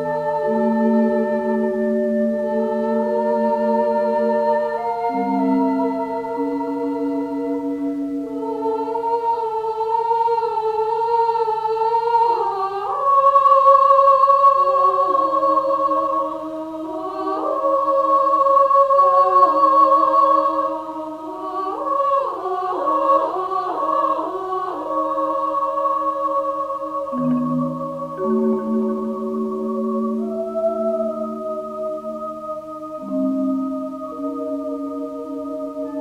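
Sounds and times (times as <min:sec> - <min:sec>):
electronic keyboard melody: 0:27.1 - 0:36.0.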